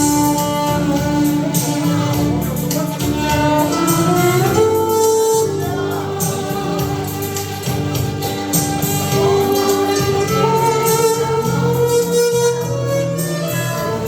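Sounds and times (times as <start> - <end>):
backing accompaniment: 0.0 - 14.0
violin slow melody: 0.0 - 14.0.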